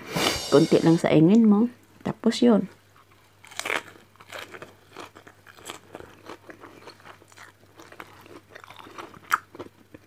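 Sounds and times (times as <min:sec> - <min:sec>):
person chewing crunchy food: 0:03.0 - 0:10.0.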